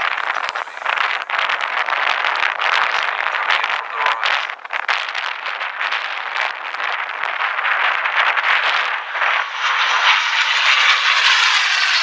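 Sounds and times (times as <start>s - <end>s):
propeller aircraft engine passing: 7.6s - 12.0s.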